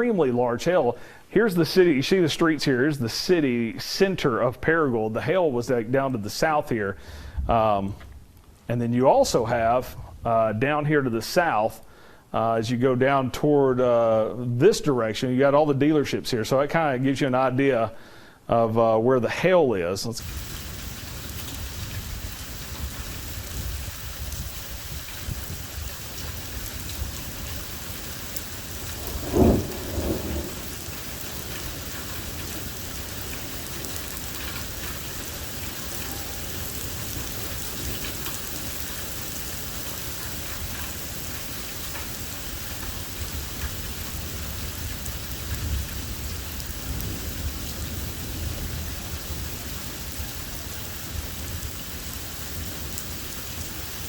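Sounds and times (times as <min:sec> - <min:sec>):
low thunder rumbles: 0:20.2 - 0:39.4, 0:43.0 - 0:51.8
heavy rain falling: 0:20.2 - 0:54.0
thunder clap: 0:26.4 - 0:35.5.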